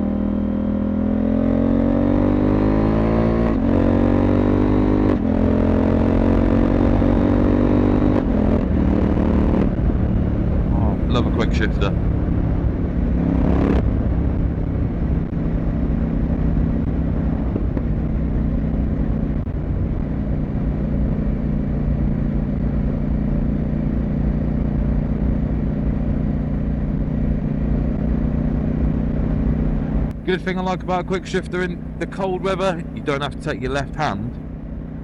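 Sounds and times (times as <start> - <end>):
motorcycle engine and exhaust: 0.0 - 35.0.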